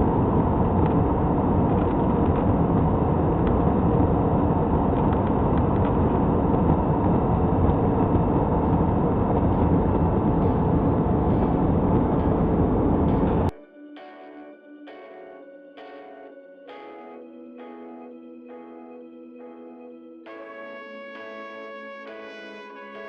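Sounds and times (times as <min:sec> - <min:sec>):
airliner cabin noise: 0:00.0 - 0:13.6.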